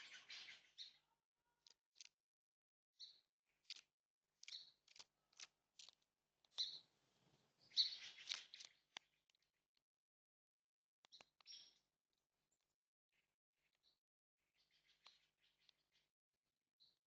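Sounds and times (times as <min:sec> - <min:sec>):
bird chirps: 0:00.0 - 0:02.1, 0:03.0 - 0:03.8, 0:04.4 - 0:09.5, 0:11.0 - 0:11.8, 0:13.2 - 0:16.1.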